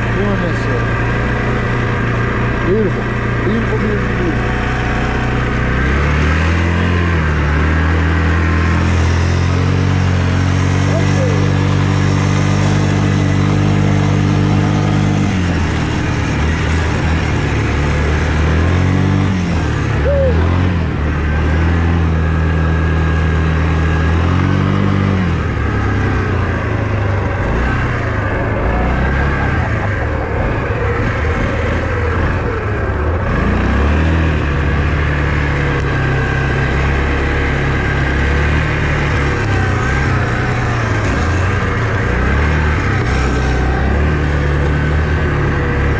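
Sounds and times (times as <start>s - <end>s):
off-road vehicle engine: 0.0s - 45.9s
rough rumbling noise: 0.0s - 45.9s.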